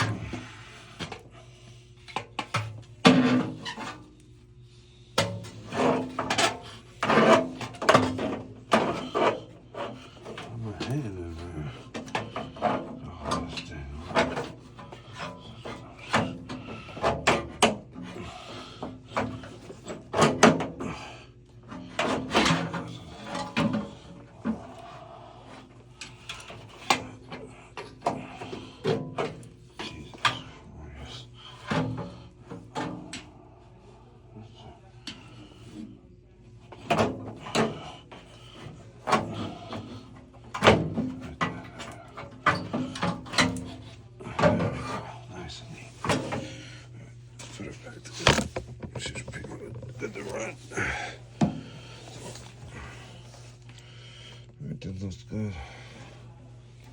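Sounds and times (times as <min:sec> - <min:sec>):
metal parts knocking and scraping: 0:48.1 - 0:50.3.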